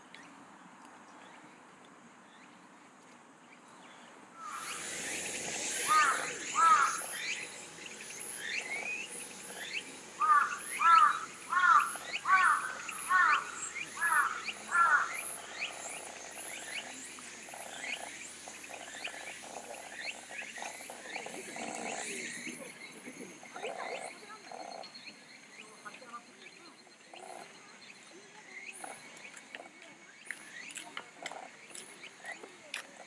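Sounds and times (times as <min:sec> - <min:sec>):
bird calling loudly: 0:04.4 - 0:15.8
insects chirring: 0:04.4 - 0:29.6.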